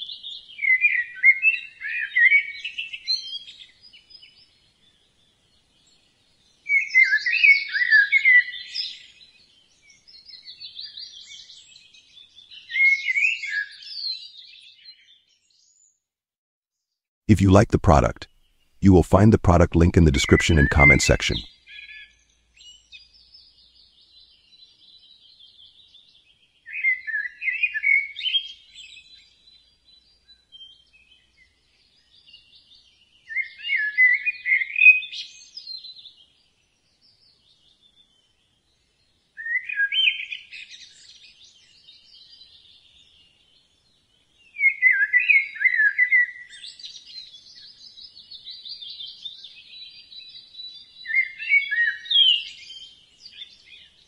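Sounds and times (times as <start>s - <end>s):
songbird warbled phrases: 18.8s - 21.5s.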